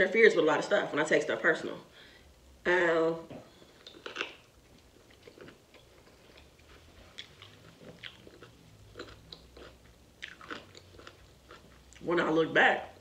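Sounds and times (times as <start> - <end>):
wet chewing: 3.5 - 12.1.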